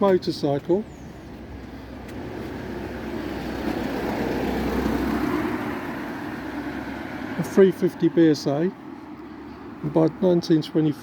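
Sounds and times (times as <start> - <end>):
car driving past: 2.6 - 7.6.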